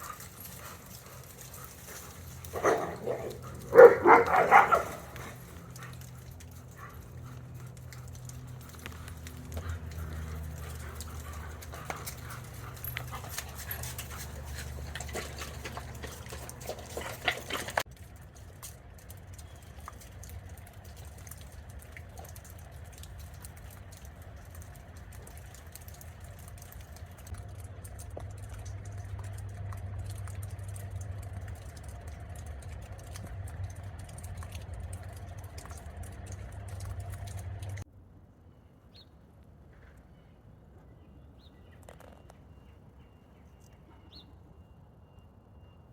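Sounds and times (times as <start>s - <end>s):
dogs scuffling and playing: 0.0s - 37.8s
steady low hum: 27.0s - 37.8s.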